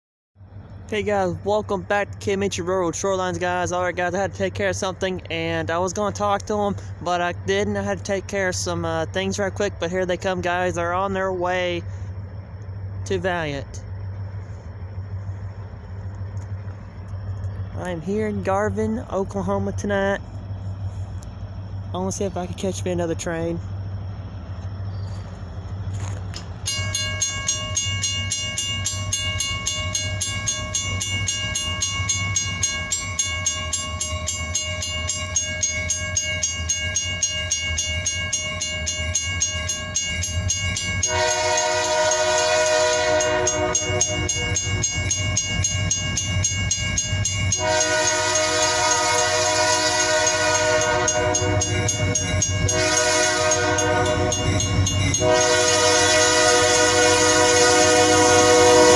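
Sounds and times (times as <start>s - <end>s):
train low rumble: 0.4s - 58.9s
pulsing ringing bell: 26.6s - 58.9s
locomotive air horn: 41.0s - 45.0s, 47.2s - 58.9s.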